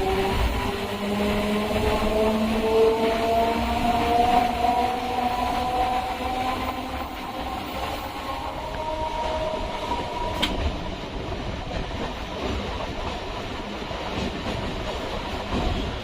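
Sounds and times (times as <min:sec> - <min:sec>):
electric train rumbling: 0:00.0 - 0:16.0
train wheel clickety-clack: 0:00.0 - 0:16.0.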